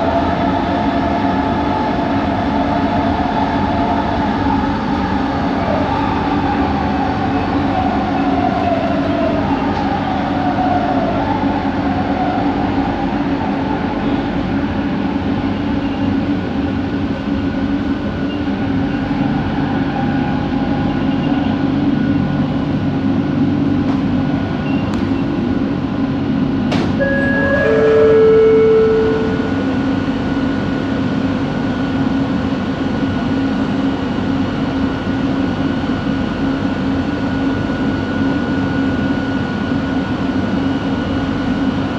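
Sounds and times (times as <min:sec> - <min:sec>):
brief steady tone: 0:27.0 - 0:30.9
motor whine gliding in pitch: 0:27.0 - 0:31.8.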